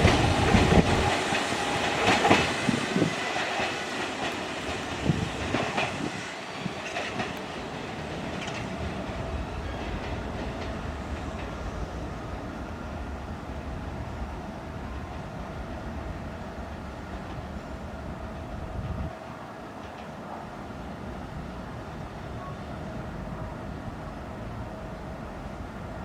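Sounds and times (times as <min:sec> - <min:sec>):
train wheels clattering over rail joints: 0:00.0 - 0:11.9
train rumble: 0:00.0 - 0:26.0.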